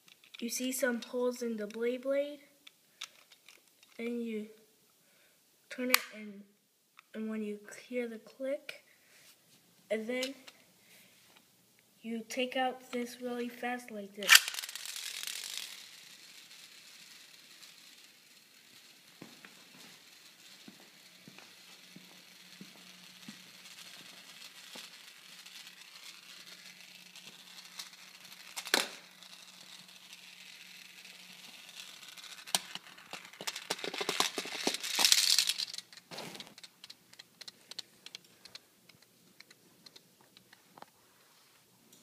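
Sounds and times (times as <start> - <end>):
light ticks of spinning top: 0.0 - 4.0, 14.2 - 41.0
clattering rattle: 14.2 - 40.0
spinning top whirring on plastic: 14.2 - 40.6.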